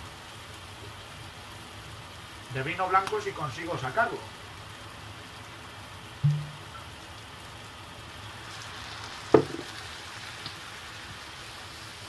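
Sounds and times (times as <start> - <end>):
offal sizzling in frying pan: 0.0 - 12.0
sharp knock: 6.2 - 6.6.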